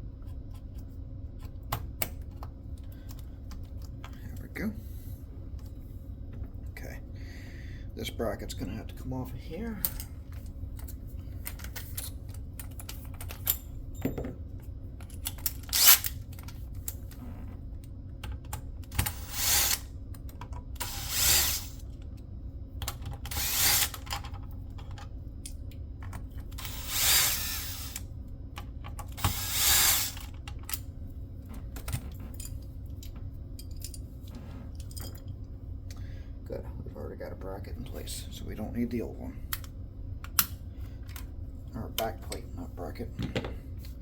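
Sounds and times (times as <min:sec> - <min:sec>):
electric screwdriver running: 0:19.1 - 0:19.9, 0:20.8 - 0:21.8, 0:23.3 - 0:24.0, 0:26.6 - 0:28.0, 0:29.2 - 0:30.2
sharp clicks of parts handled: 0:31.8 - 0:34.0, 0:39.5 - 0:41.3.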